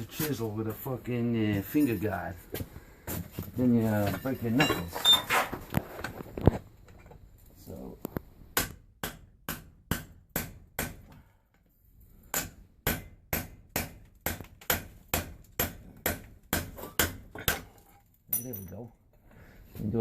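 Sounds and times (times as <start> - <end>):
hammer striking a chisel: 8.6 - 11.2, 12.3 - 17.7.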